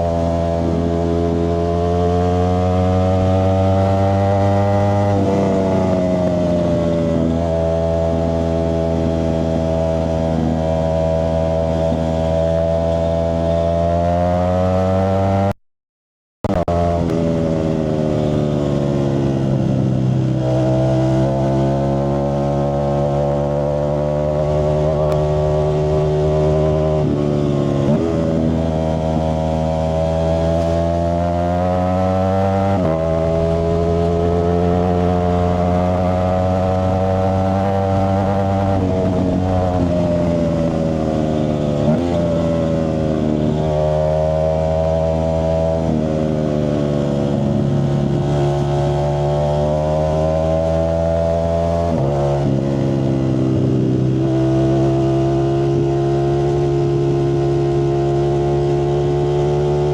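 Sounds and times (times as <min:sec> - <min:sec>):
motorcycle engine running: 0:16.4 - 0:59.9.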